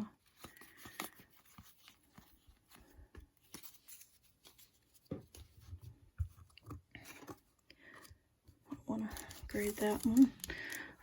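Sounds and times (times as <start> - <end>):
trading cards rustling and clicking: 0.1 - 5.6, 9.0 - 11.0.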